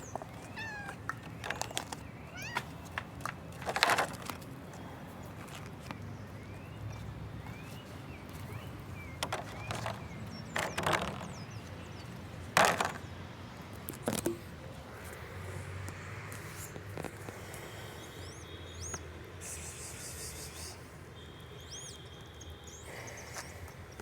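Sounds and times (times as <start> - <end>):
birds chirping: 0.0 - 24.0
sharp knocks and clatters: 9.2 - 11.4, 12.6 - 13.1.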